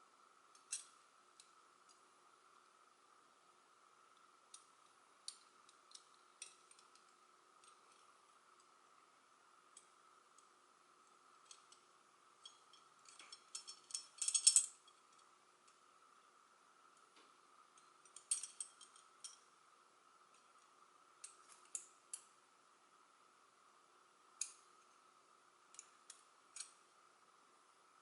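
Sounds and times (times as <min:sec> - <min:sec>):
faint steady hum: 0:00.0 - 0:28.0
metal puzzle pieces clicking: 0:12.4 - 0:14.7.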